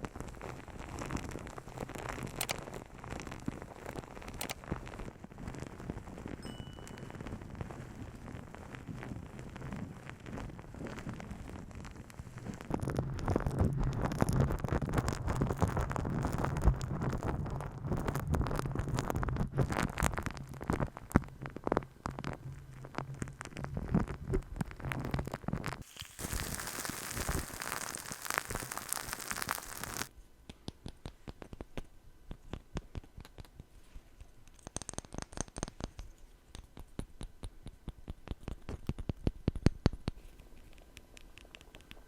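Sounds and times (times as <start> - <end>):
steady scratchy hiss: 0.0 - 30.1.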